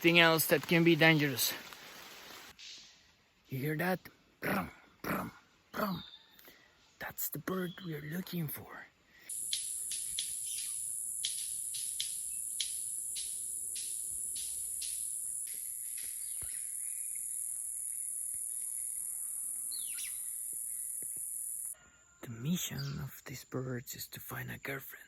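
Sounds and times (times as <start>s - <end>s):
high-pitched insect buzz: 9.3s - 21.8s.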